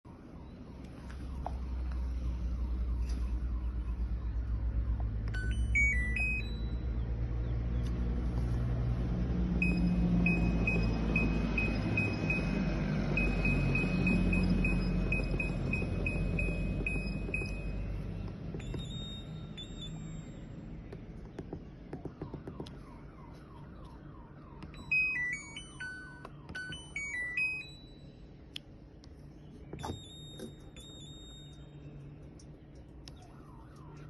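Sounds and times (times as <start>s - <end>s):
washing machine beeps: 5.3s - 7.2s, 9.6s - 20.9s, 24.6s - 28.3s, 29.6s - 32.2s.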